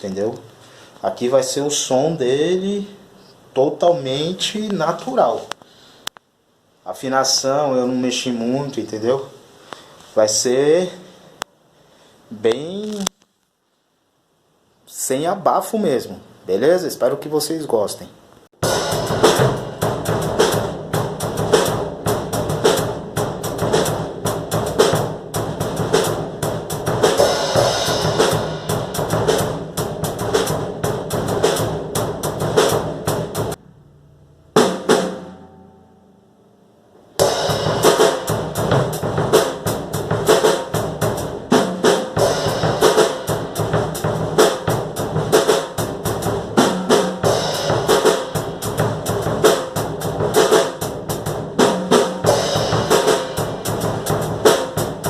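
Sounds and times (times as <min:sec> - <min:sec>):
drum kit groove: 0:18.6 - 0:33.6, 0:34.6 - 0:35.5, 0:37.2 - 0:55.0
open ringing bass drum: 0:18.6 - 0:36.1, 0:37.2 - 0:55.0.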